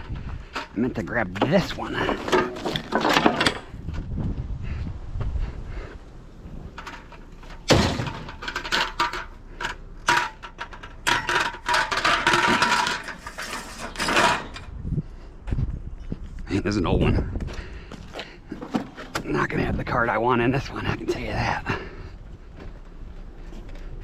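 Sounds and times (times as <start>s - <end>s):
metal scrap clanging and rattling: 0.0s - 3.9s, 6.5s - 14.7s.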